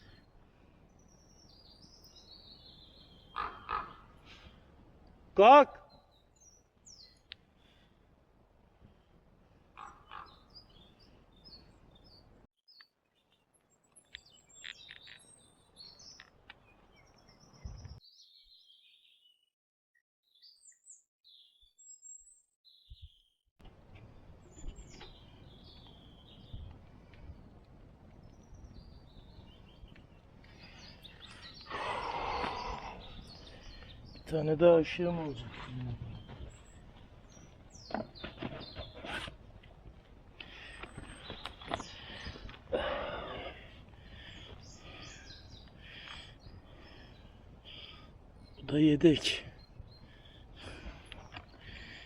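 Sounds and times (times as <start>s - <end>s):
songbirds chirping: 0.0s - 19.5s, 20.2s - 52.0s.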